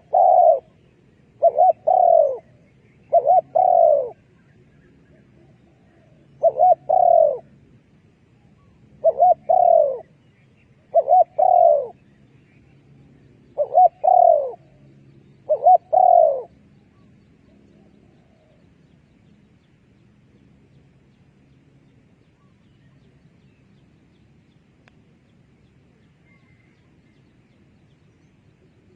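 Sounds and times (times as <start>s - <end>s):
dove cooing: 0.0s - 4.2s, 5.1s - 7.5s, 8.6s - 10.1s, 10.9s - 12.0s, 13.6s - 16.6s, 26.2s - 26.8s.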